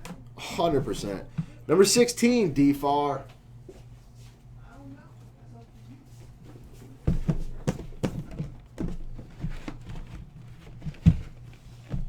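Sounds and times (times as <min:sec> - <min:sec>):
boxes knocking on table: 0:07.1 - 0:12.0.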